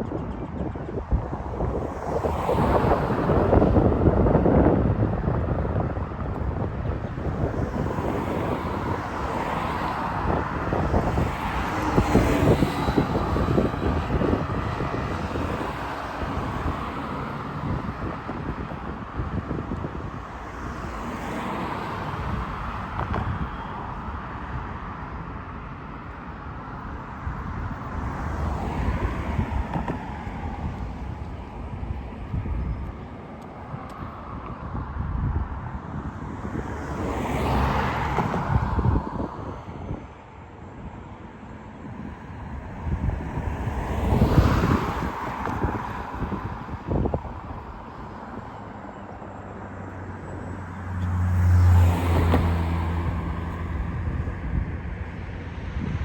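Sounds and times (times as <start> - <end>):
cars passing: 0.0 - 56.0.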